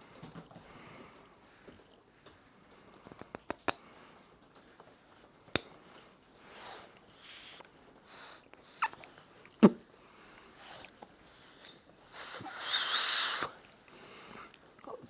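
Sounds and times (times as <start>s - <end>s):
puffs of breath blown: 10.6s - 14.5s.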